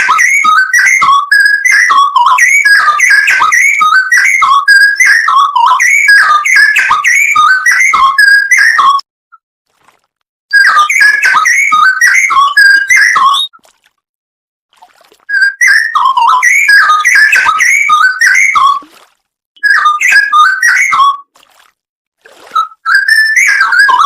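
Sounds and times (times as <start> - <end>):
bird singing whistled notes: 0.0 - 9.0, 10.5 - 13.6, 15.3 - 18.8, 19.6 - 21.2, 22.5 - 24.0.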